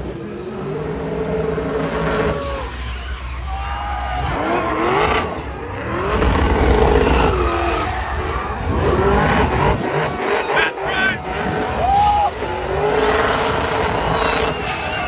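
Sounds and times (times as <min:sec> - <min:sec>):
car engine revving hard: 0:04.3 - 0:15.0
tyre noise: 0:04.4 - 0:15.0.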